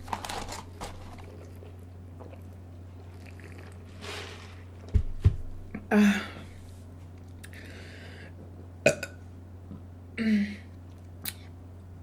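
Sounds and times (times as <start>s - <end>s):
woman burping: 8.9s - 9.2s.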